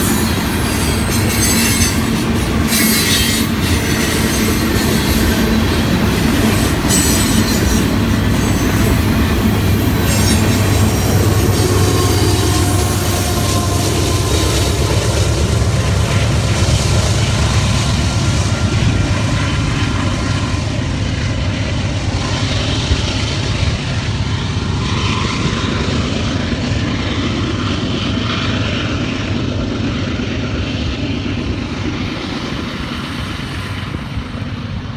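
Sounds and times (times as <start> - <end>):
wheel squeal: 0.0 - 5.4, 6.4 - 14.7
train rumbling and clattering: 0.0 - 34.9.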